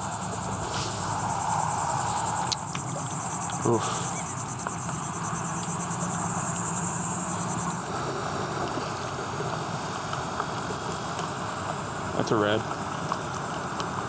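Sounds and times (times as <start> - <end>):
high-pitched insect buzz: 0.0 - 7.9
water: 0.0 - 14.0
wind: 0.0 - 14.0.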